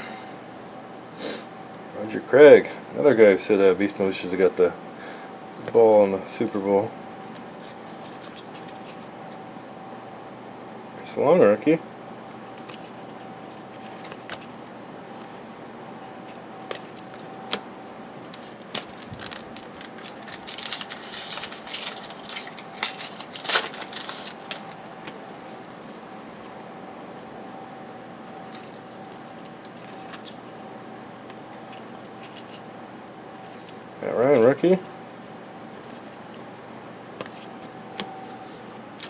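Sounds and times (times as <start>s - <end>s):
faint steady hum: 0.0s - 39.0s
trading cards clicking and rustling: 5.5s - 9.4s, 12.4s - 26.7s, 28.3s - 30.6s, 31.2s - 32.7s, 35.7s - 39.0s.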